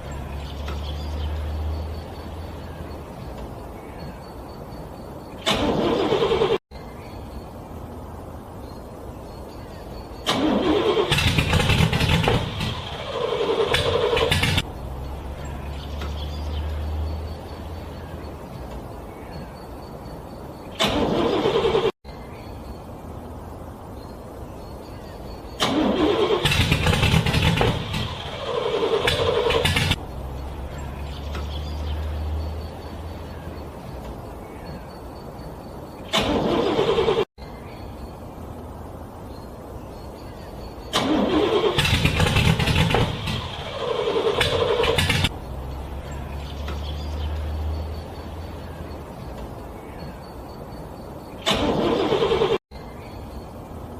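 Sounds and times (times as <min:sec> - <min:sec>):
car engine cranking: 0:05.4 - 0:06.6, 0:10.2 - 0:18.8, 0:20.8 - 0:22.0, 0:25.6 - 0:34.2, 0:36.0 - 0:37.3, 0:40.9 - 0:49.6, 0:51.4 - 0:52.6.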